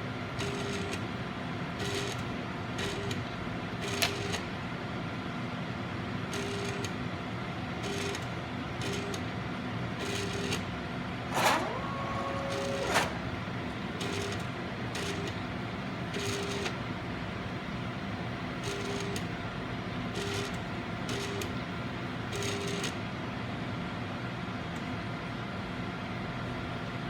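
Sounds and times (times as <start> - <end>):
rising mechanical whine: 11.3 - 14.0
sharp mechanical click: 11.3 - 14.4
short motor buzzes and clicks: 11.3 - 15.4
autosampler motors humming: 11.3 - 16.9.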